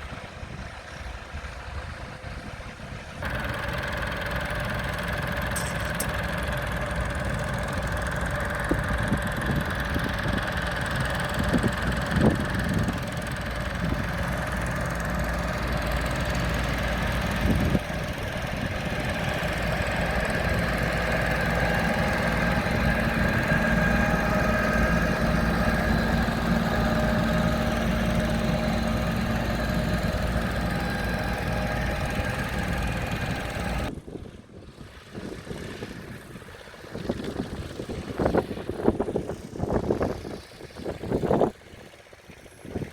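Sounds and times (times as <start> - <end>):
tractor engine running: 3.2 - 34.0.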